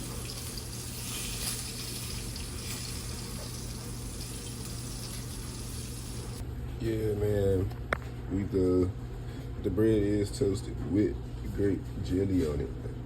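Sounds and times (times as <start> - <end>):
water running from tap: 0.0 - 6.4.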